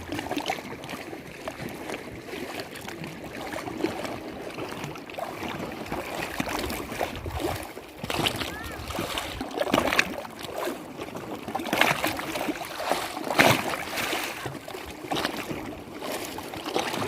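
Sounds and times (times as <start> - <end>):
water lapping and splashing: 0.0 - 17.0.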